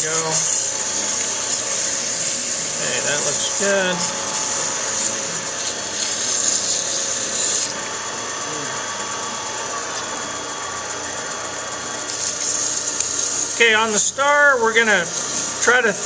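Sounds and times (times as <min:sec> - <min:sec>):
sandpaper rasping on wood: 0:00.0 - 0:07.8, 0:14.8 - 0:16.0
wood lathe running: 0:00.0 - 0:16.0.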